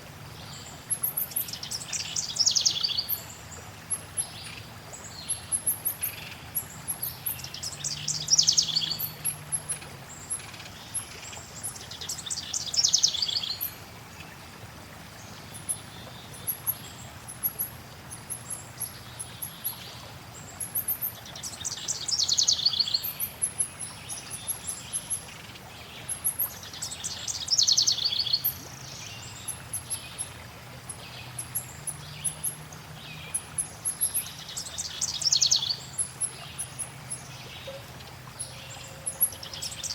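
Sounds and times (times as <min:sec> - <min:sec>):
flowing water hiss: 0:00.0 - 0:39.9
descending trilled birdsong: 0:06.9 - 0:10.4.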